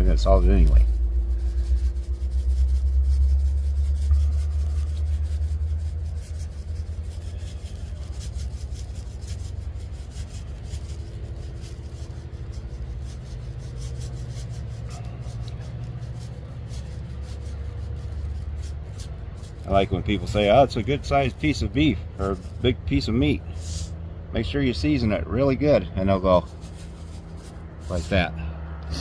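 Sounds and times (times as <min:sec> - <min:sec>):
salt scratchy ticks: 0:00.0 - 0:23.2
low rumble: 0:00.0 - 0:24.7.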